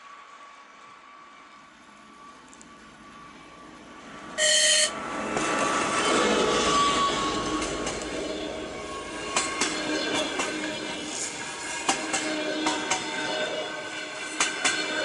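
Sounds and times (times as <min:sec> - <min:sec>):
locomotive engine and wheels rumble: 0:00.0 - 0:15.0
locomotive horn blast: 0:04.4 - 0:05.0.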